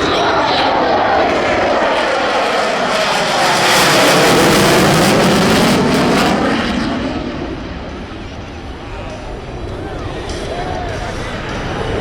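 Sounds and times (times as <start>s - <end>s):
aircraft engines flyby: 0.0s - 12.0s.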